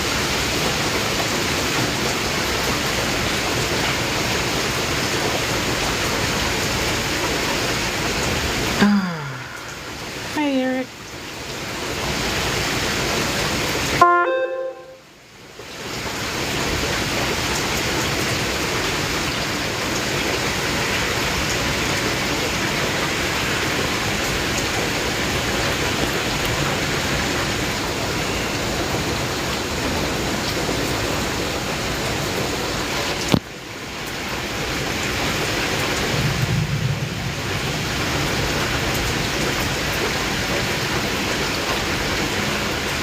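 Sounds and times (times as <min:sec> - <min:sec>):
heavy rain hissing: 0:00.0 - 0:14.0, 0:15.2 - 0:43.0.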